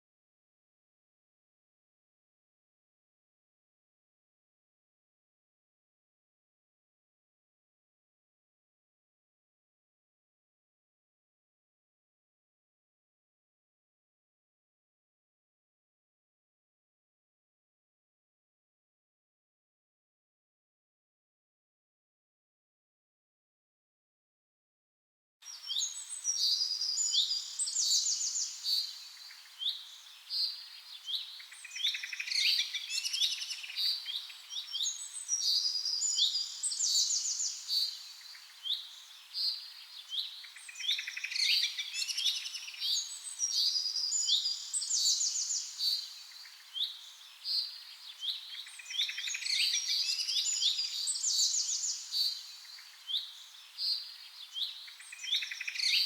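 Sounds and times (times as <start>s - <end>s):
small birds chirping and twittering: 25.4s - 56.0s.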